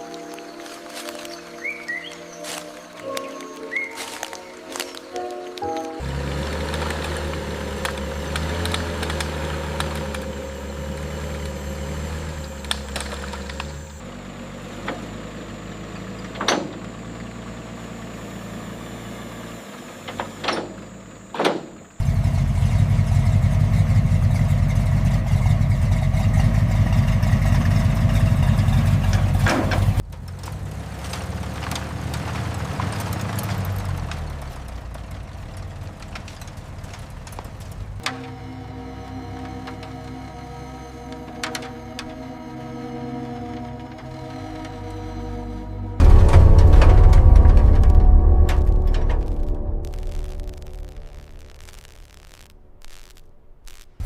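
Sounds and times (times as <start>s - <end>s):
car engine idling: 6.0s - 54.0s.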